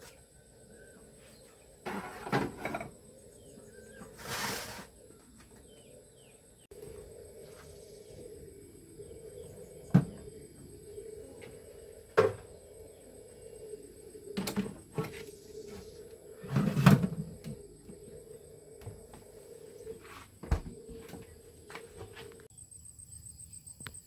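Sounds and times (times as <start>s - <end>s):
faint hum: 4.8s - 24.0s.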